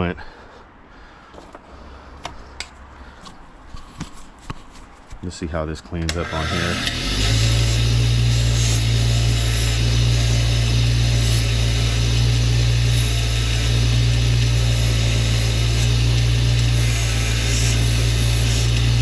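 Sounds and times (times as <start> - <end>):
electric power tool running: 6.1 - 19.0.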